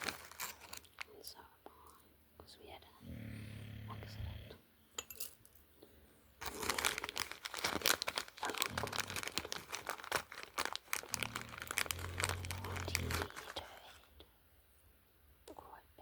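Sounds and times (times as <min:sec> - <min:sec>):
packaging crinkling: 0:00.0 - 0:01.1, 0:06.4 - 0:14.1.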